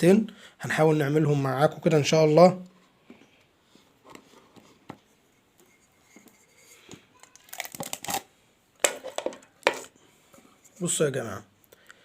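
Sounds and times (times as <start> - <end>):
plastic scraping and crackling: 6.9 - 9.9.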